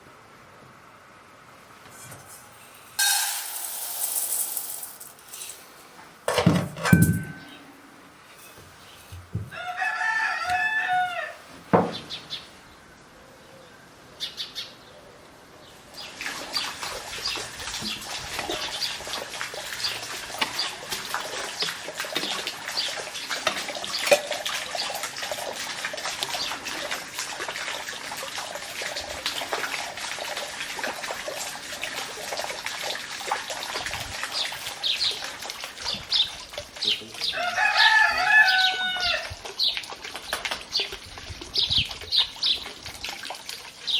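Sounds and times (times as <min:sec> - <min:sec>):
rooster crowing: 0:09.5 - 0:11.5, 0:37.3 - 0:39.3.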